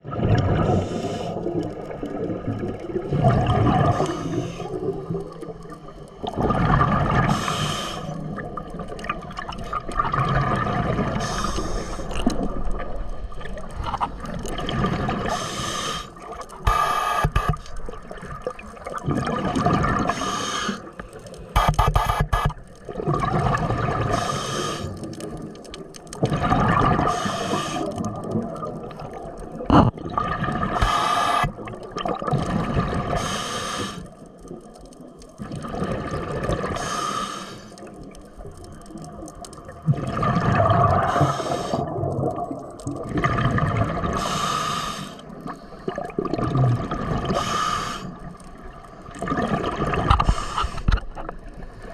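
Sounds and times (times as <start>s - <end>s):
diver breathing through regulator: 0.6s - 1.5s, 3.8s - 4.8s, 7.2s - 8.3s, 11.2s - 12.2s, 15.2s - 17.8s, 20.1s - 21.0s, 24.1s - 25.1s, 27.0s - 28.0s, 30.7s - 31.6s, 33.1s - 34.2s, 36.7s - 37.8s, 41.0s - 42.0s, 44.1s - 45.9s, 47.2s - 48.3s, 50.2s - 51.0s.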